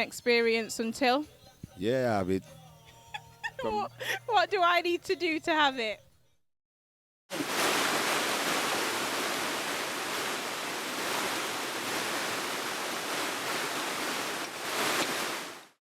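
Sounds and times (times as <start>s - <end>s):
water rushing: 7.3s - 15.8s.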